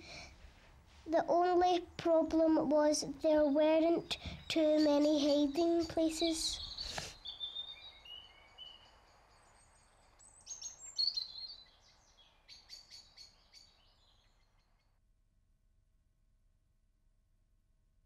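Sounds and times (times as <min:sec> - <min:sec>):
faint birds chirping: 0:01.2 - 0:14.9.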